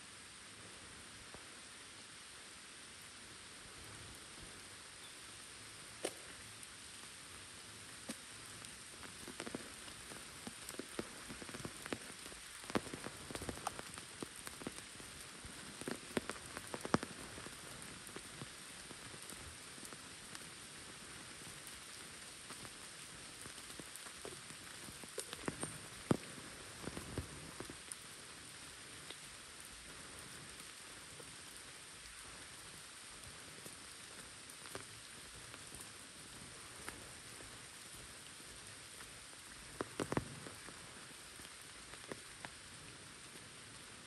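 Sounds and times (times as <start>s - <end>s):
light rain on pavement and foliage: 0.0s - 44.0s
close taps of raindrops: 6.0s - 6.5s, 8.0s - 28.1s, 33.2s - 38.1s, 38.9s - 42.6s.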